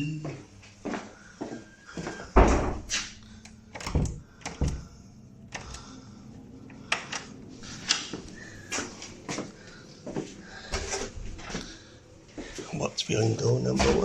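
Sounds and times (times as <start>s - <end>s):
door thudding shut: 2.4s - 2.9s.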